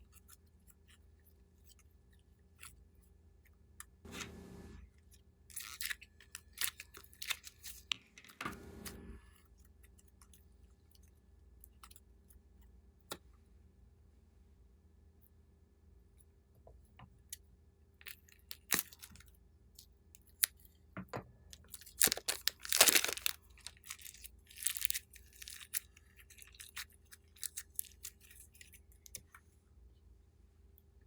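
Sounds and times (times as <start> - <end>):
sticky slime clicks and crackles: 18.1 - 19.2, 21.6 - 29.3.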